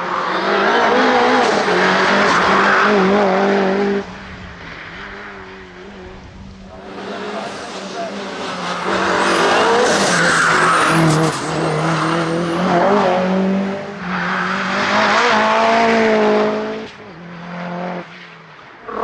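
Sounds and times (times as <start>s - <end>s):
turbocharged car engine at high revs: 5.8s - 18.1s.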